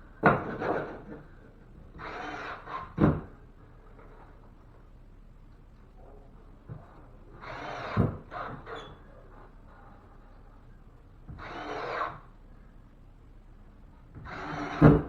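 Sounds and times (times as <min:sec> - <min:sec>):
cordless drill driving screws: 0:07.4 - 0:08.5, 0:11.4 - 0:12.2, 0:14.2 - 0:14.9.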